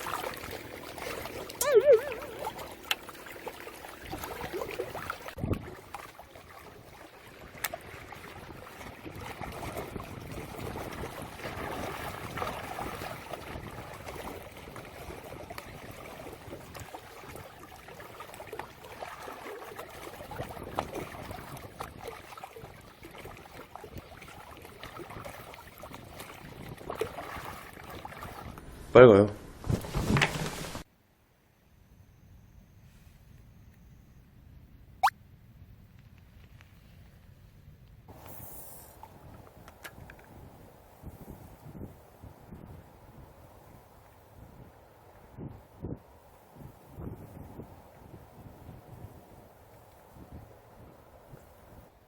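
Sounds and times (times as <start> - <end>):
water lapping at shoreline: 0.0 - 29.0.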